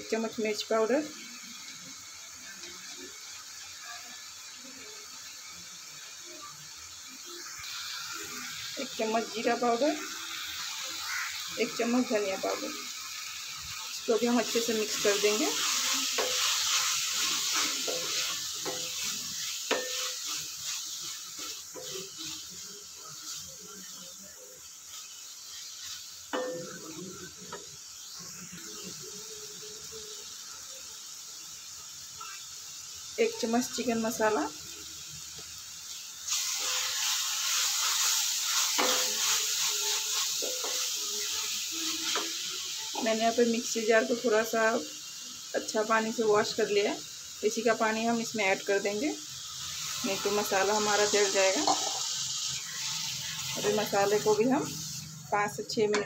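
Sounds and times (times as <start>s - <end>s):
onion masala sizzling: 0.0s - 56.0s
wooden spatula scraping a pan: 14.6s - 22.6s, 51.5s - 52.1s
wooden spatula scraping and knocking pan: 51.6s - 52.1s.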